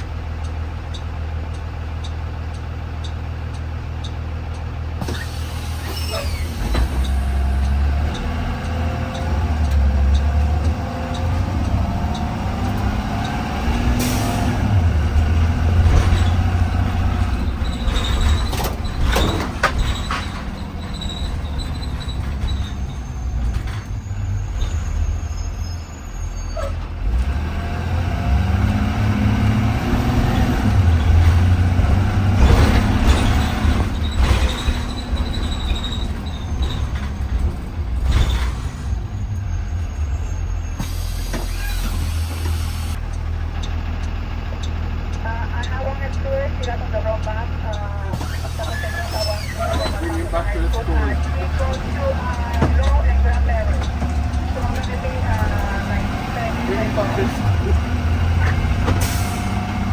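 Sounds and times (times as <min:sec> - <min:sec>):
bus engine running: 0:00.0 - 0:59.9
air brake hisses: 0:05.0 - 0:07.5, 0:13.9 - 0:14.6, 0:40.6 - 0:43.0.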